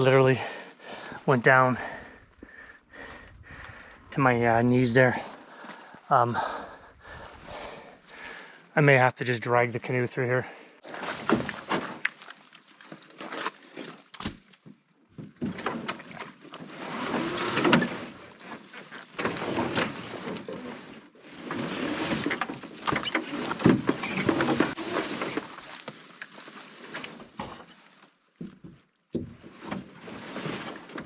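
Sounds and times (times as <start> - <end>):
canoe scraping through mud: 10.8 - 12.6, 16.6 - 18.7, 23.2 - 27.2, 30.0 - 31.0.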